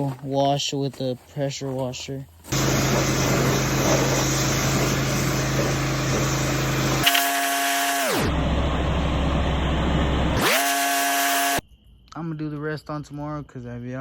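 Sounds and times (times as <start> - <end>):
water spray hiss: 2.5 - 8.0
pressure washer motor hum: 2.5 - 11.6.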